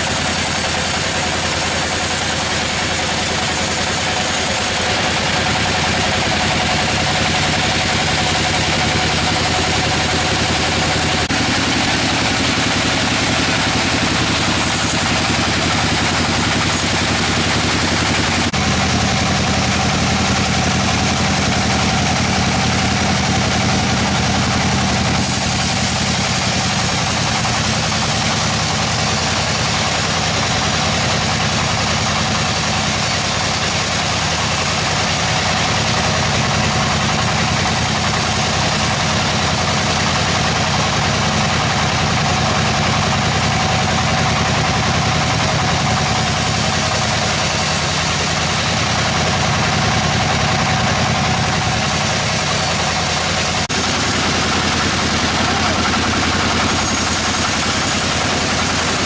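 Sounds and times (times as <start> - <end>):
sawmill machinery humming: 0.0 - 59.0.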